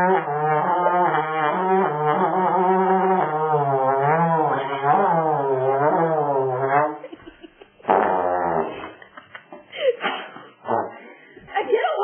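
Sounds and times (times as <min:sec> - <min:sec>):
raspy buzzing trombone blast: 0:00.0 - 0:07.0, 0:07.8 - 0:09.0, 0:10.6 - 0:11.1
trombone sliding note: 0:00.0 - 0:07.0.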